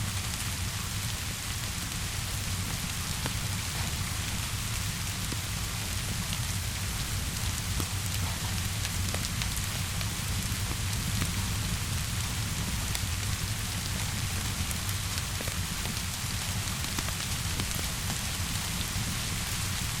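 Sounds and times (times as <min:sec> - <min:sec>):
steady rain hissing: 0:00.0 - 0:20.0
wood fire crackling: 0:00.1 - 0:20.0.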